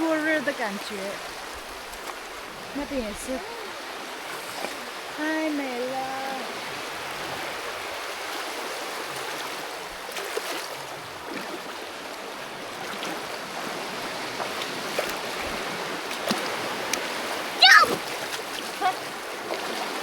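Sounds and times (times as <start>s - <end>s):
water rushing: 0.0s - 20.0s
faint small splashes: 14.4s - 20.0s.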